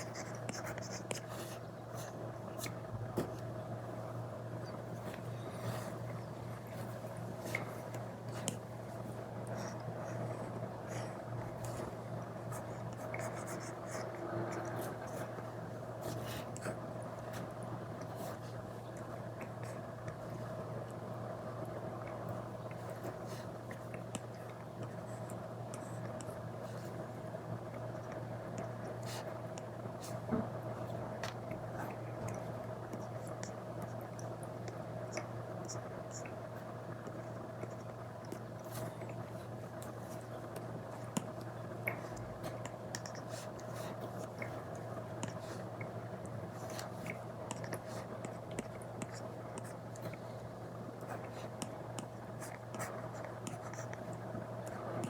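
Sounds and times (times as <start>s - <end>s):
stylus scratching and tapping on screen: 0.0s - 3.5s
steady low hum: 0.0s - 55.0s.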